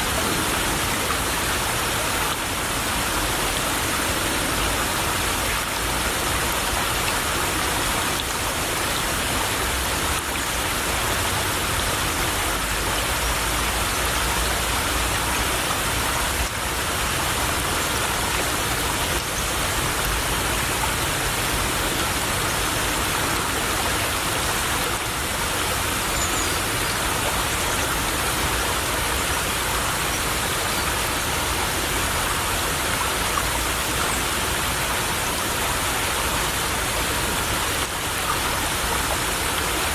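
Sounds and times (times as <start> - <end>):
stream trickling and babbling: 0.0 - 39.9.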